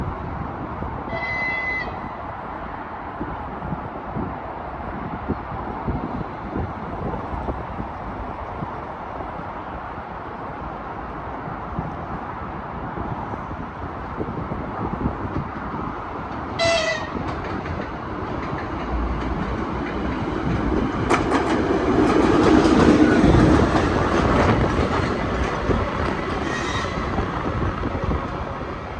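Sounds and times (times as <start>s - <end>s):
diesel locomotive train passing: 0.0s - 28.9s
wheels clicking over rail joints: 15.3s - 28.7s
train horn blast: 16.6s - 17.2s, 26.4s - 27.1s.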